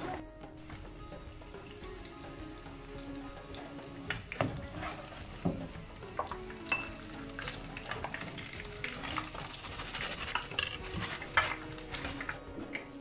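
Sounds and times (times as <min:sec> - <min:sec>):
fish frying in hot oil: 0:00.0 - 0:12.8
metal strainer scraping a pan: 0:04.1 - 0:05.6, 0:07.2 - 0:12.9.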